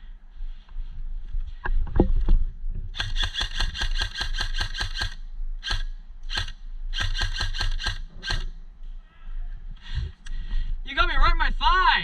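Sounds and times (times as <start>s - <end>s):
airsoft rifle shots: 2.9s - 8.6s.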